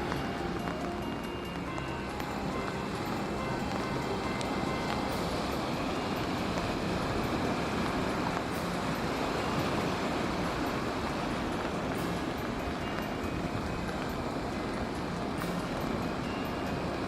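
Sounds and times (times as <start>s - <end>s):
sea surf breaking: 0.0s - 17.0s.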